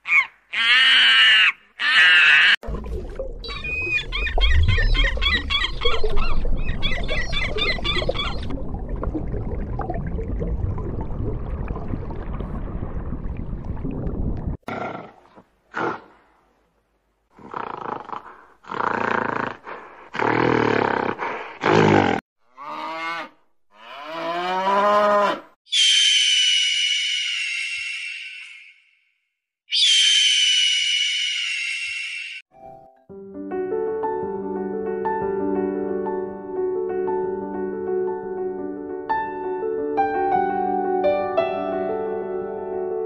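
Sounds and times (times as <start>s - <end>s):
long low unpitched sound: 8.4s - 14.6s
cow mooing: 22.5s - 25.5s.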